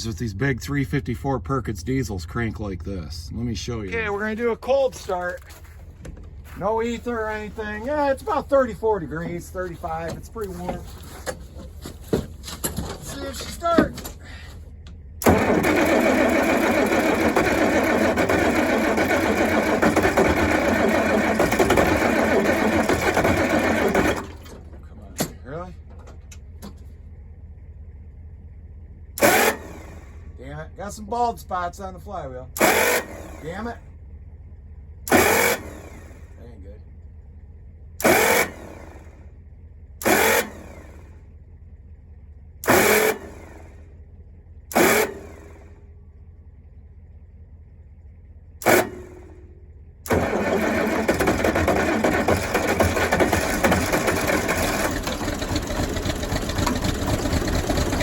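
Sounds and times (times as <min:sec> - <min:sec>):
electric starter cranking engine: 0:15.2 - 0:24.7, 0:29.2 - 0:30.2, 0:32.6 - 0:33.8, 0:35.0 - 0:36.3, 0:38.0 - 0:39.2, 0:40.0 - 0:41.2, 0:42.6 - 0:43.8, 0:44.7 - 0:45.8, 0:48.6 - 0:49.4, 0:50.0 - 0:58.0.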